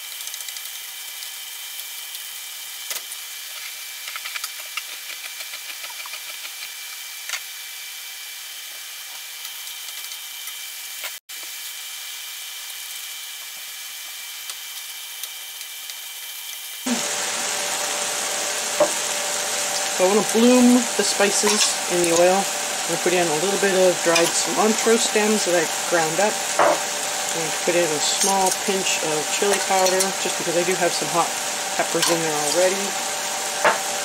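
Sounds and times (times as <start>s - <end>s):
food sizzling in a skillet: 16.9s - 34.0s
wooden spoon scraping a pan: 19.8s - 30.5s.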